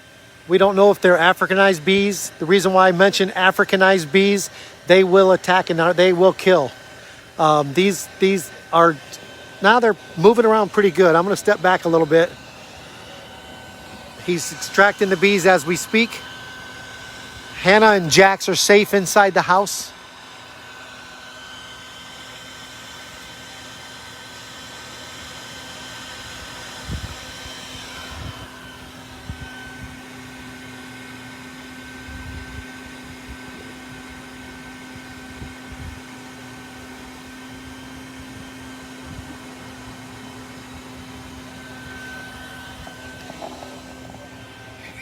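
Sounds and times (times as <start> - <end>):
vacuum motor humming and whining: 0.0 - 45.0.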